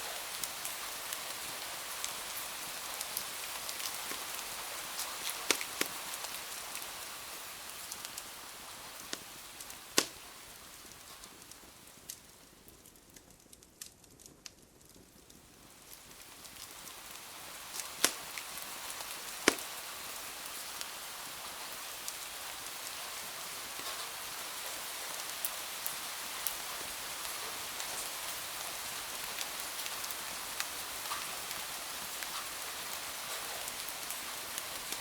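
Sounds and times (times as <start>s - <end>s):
rain hiss with drop ticks: 0.0s - 35.0s
sharp pops: 5.5s - 6.0s, 9.9s - 10.2s, 17.7s - 18.4s, 19.4s - 19.7s.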